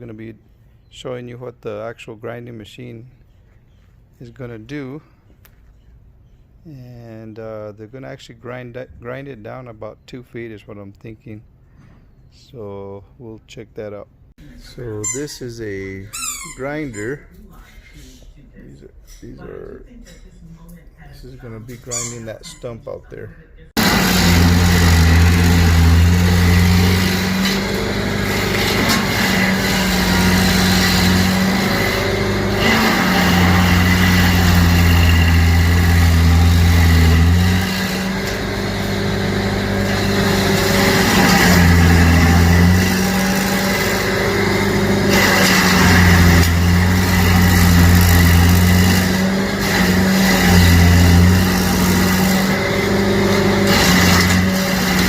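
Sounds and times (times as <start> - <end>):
cutter wheel churning: 23.8 - 55.0
stump grinder engine: 23.8 - 55.0.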